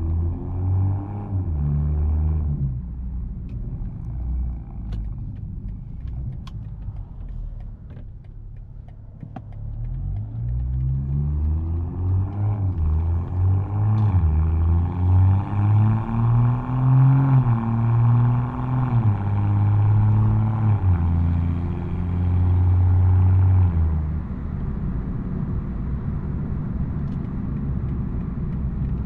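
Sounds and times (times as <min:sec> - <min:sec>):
car engine exhaust accelerating: 0:00.0 - 0:29.0.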